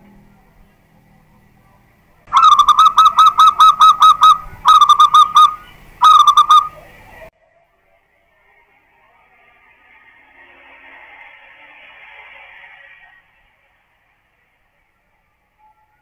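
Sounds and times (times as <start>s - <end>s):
dove cooing: 2.3s - 7.1s.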